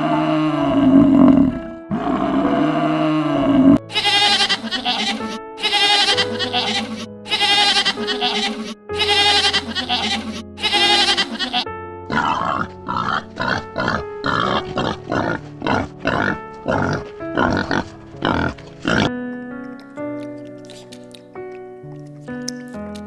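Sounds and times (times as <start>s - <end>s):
wild boars grunting: 0.0s - 5.4s, 8.1s - 19.1s
background music: 0.0s - 23.0s
goat bleating: 3.9s - 19.1s.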